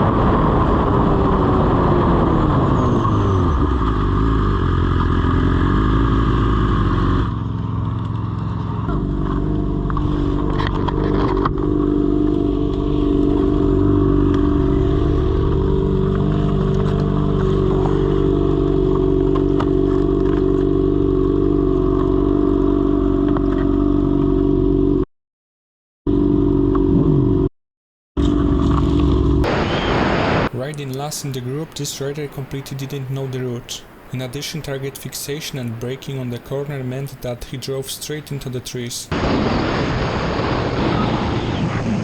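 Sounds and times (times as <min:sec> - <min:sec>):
motorcycle engine running: 0:02.8 - 0:25.0, 0:26.1 - 0:27.5, 0:28.2 - 0:29.5.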